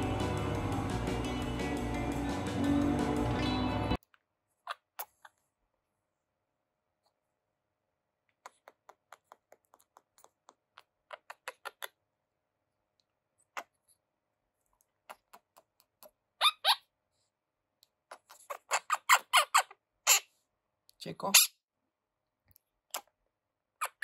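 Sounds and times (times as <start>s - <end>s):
parrot chirps: 10.8s - 12.0s, 15.1s - 16.9s, 18.1s - 20.4s, 21.3s - 21.6s, 23.8s - 24.0s.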